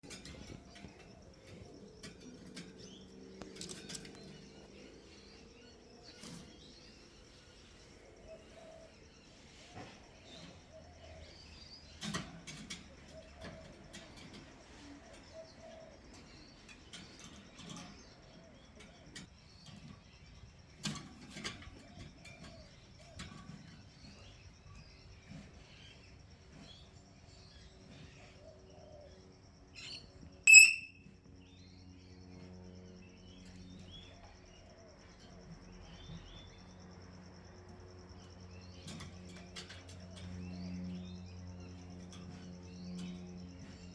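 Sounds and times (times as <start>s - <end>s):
parrot high-pitched call: 30.5s - 31.0s.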